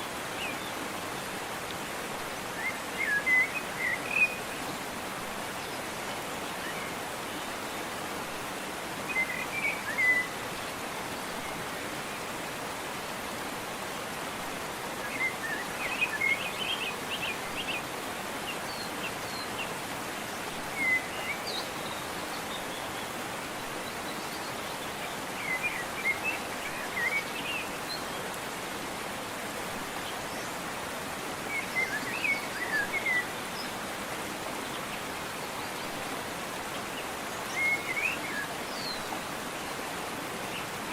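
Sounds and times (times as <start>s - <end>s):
waterfall rushing: 0.0s - 40.9s
songbird chirping: 29.9s - 40.9s.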